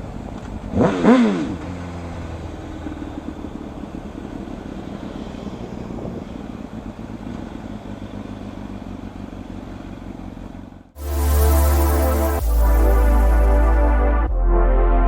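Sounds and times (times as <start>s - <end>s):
motorcycle engine running: 0.0s - 14.0s
road noise: 0.0s - 14.3s.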